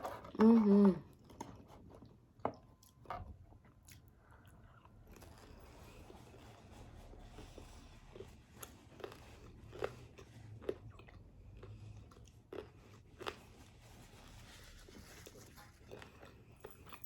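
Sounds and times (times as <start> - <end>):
person chewing: 1.2 - 6.5, 7.2 - 13.7, 15.8 - 16.9.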